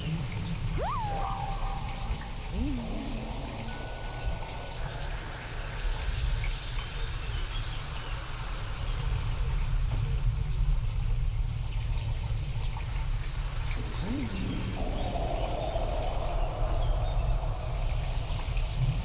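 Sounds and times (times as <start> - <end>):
steady rain falling: 13.7 - 19.0.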